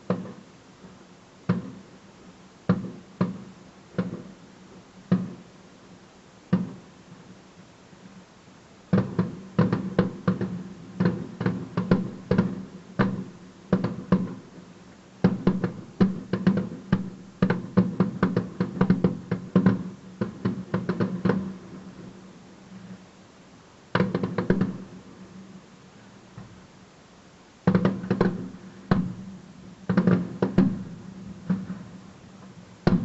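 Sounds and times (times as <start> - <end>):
fireworks bangs: 1.5 - 1.9, 2.7 - 4.4, 5.0 - 5.5, 6.5 - 7.3, 8.9 - 23.0, 23.9 - 25.4, 27.6 - 33.0.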